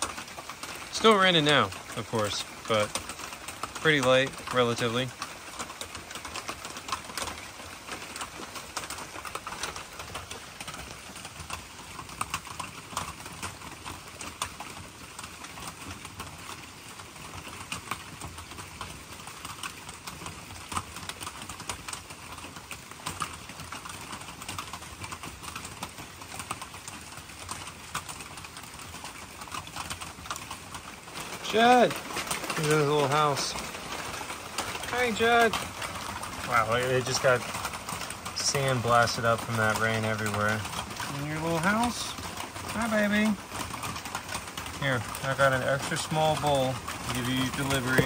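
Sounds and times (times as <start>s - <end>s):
light rain falling: 0.0s - 48.0s.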